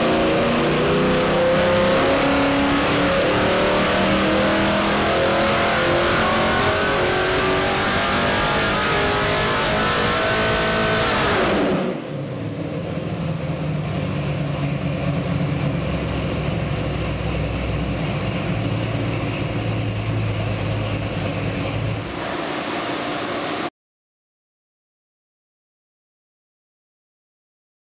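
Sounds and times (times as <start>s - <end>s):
engine revving on dyno: 0.0s - 13.0s, 15.7s - 23.7s.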